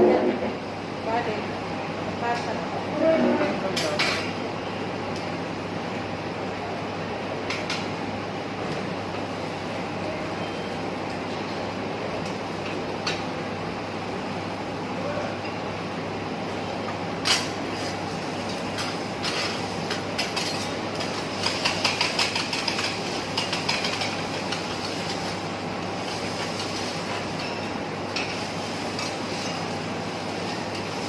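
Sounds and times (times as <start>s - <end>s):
griddle hiss: 17.2s - 31.0s
metal spatulas clacking on griddle: 18.8s - 25.1s.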